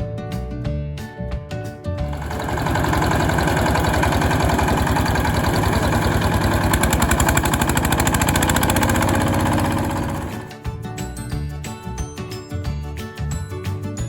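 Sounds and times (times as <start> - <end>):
small engine running: 2.0 - 10.6.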